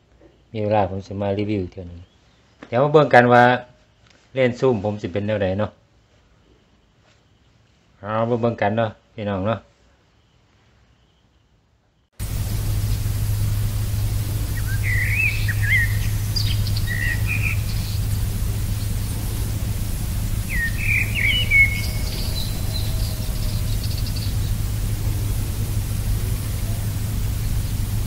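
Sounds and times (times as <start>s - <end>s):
birds chirping: 12.2s - 28.0s
steady low hum: 12.2s - 28.0s.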